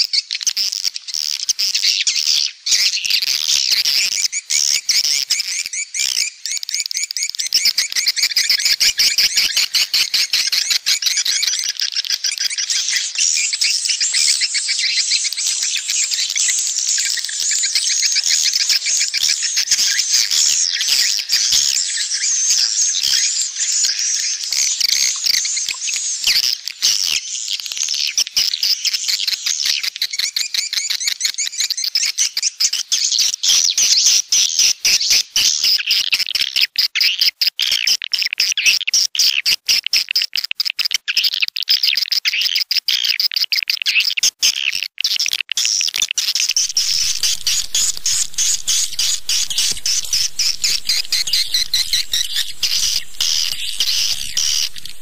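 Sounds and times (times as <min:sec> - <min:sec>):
swiftlets chirping and twittering: 0:46.3 - 0:55.0.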